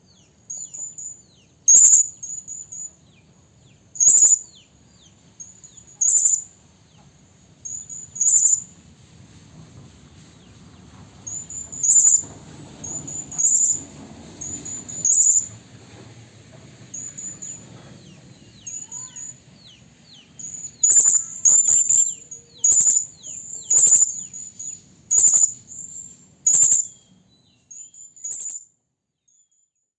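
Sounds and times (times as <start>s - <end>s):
high-pitched parrot calls: 1.7s - 2.4s, 4.0s - 4.5s, 5.9s - 6.5s, 7.7s - 8.7s, 18.7s - 19.4s, 20.4s - 25.6s, 26.5s - 27.0s
faint falling whistles: 11.3s - 15.6s, 27.8s - 28.7s.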